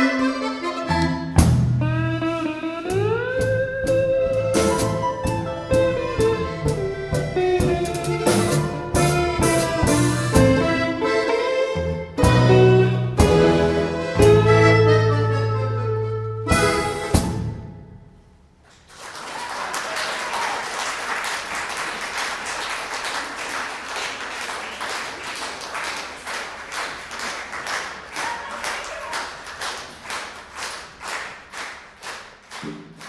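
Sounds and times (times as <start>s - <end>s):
musical ensemble playing: 0.0s - 17.9s
audience applauding: 18.7s - 33.0s.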